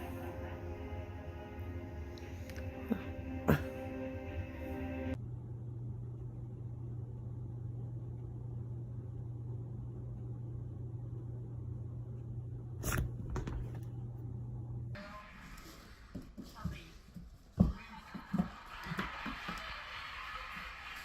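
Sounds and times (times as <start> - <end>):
low hum with rumble: 0.0 - 15.0.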